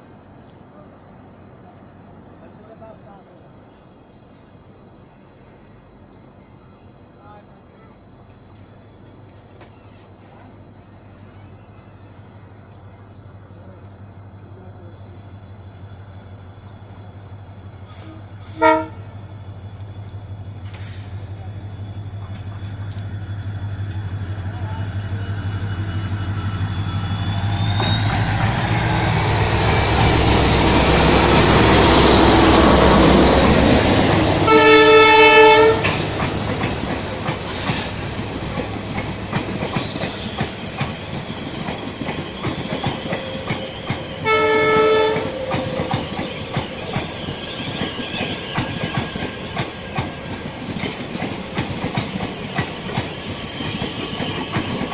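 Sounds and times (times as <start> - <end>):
locomotive engine rumble: 8.1 - 54.9
train horn blast: 18.0 - 19.2, 34.0 - 36.2, 44.2 - 45.9
high whine: 21.3 - 41.2.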